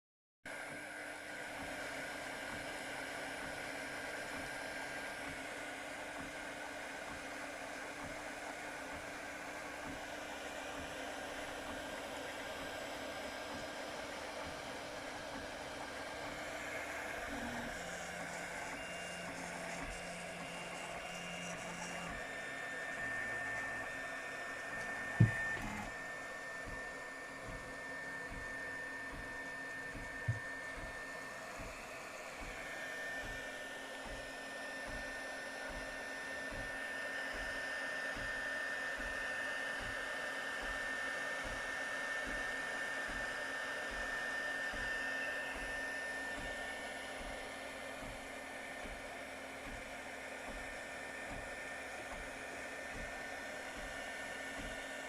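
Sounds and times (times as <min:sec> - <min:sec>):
printer fan hum: 0:00.5 - 0:55.0
high motor whine: 0:07.5 - 0:37.2.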